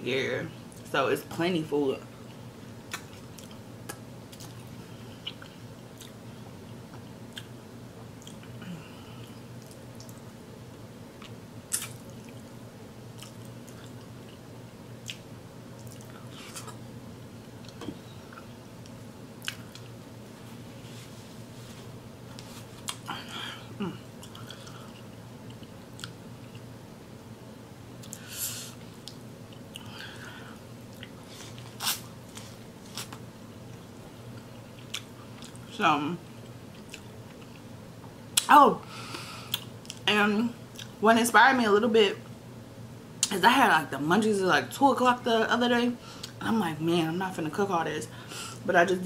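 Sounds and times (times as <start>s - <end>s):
steady low hum: 0.0s - 49.0s
person chewing shrimp: 13.1s - 14.4s, 19.4s - 20.0s, 24.1s - 26.7s, 34.4s - 35.7s, 36.4s - 37.7s.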